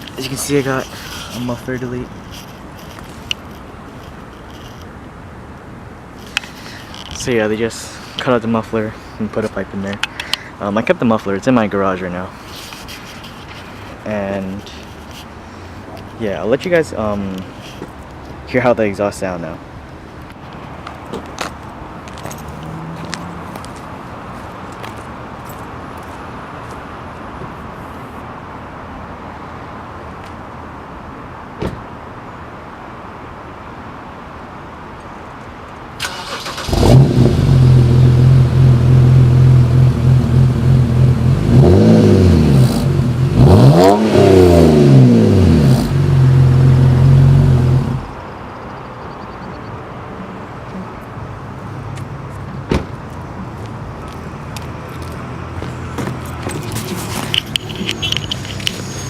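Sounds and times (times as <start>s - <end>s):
car engine idling and revving: 22.2s - 24.0s, 36.1s - 48.2s, 55.0s - 59.0s.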